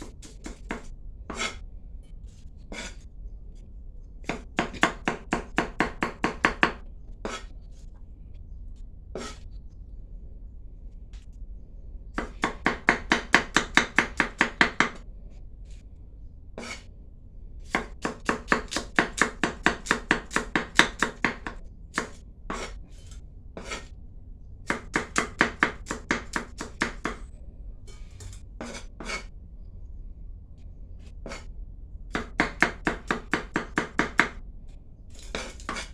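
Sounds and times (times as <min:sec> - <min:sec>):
knife chopping on cutting board: 0:00.0 - 0:01.6, 0:04.3 - 0:07.5, 0:12.2 - 0:15.0, 0:17.7 - 0:22.8, 0:24.7 - 0:27.3, 0:32.1 - 0:34.4, 0:35.2 - 0:35.9.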